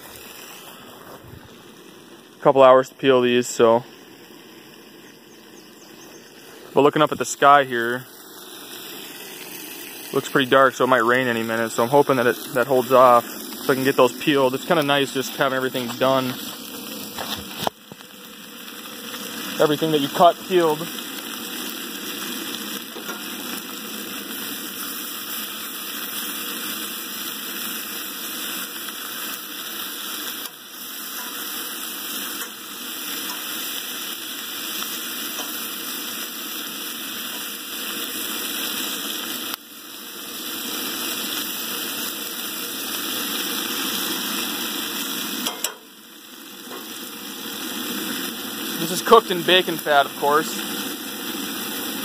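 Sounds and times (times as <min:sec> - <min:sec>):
vegetables sizzling in a skillet: 0:00.0 - 0:52.0
fork stirring in a skillet: 0:23.0 - 0:23.3, 0:31.1 - 0:31.5, 0:33.2 - 0:33.5.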